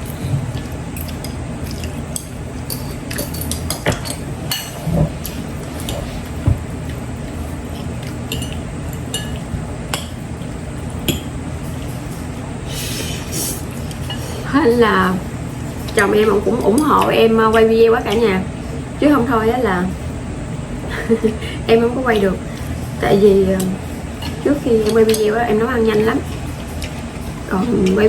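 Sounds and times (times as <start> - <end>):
steady low hum: 0.0 - 28.0
forks clinking against plates: 0.6 - 4.8, 7.7 - 10.2, 24.2 - 25.3.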